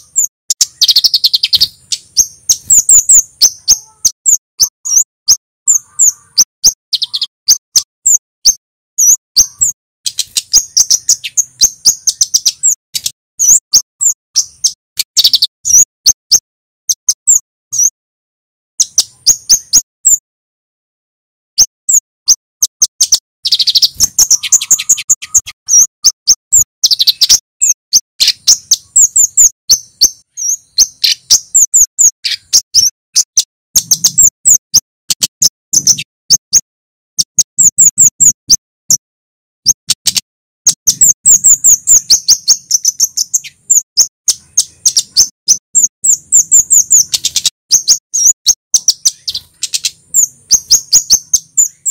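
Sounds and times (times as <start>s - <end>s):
bird calling sharp high notes: 0.0s - 17.9s, 21.6s - 36.6s.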